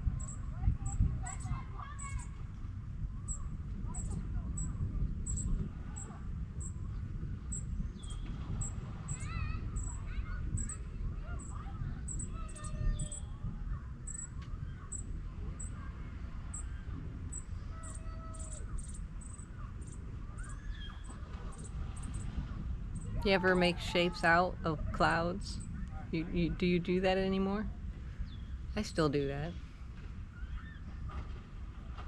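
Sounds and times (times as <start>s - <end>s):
birds chirping and calling: 17.8s - 22.2s.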